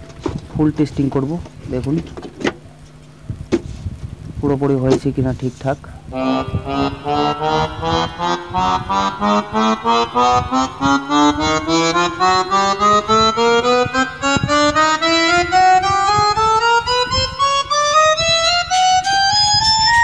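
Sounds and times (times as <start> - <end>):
electronic keyboard notes: 6.0 - 20.0.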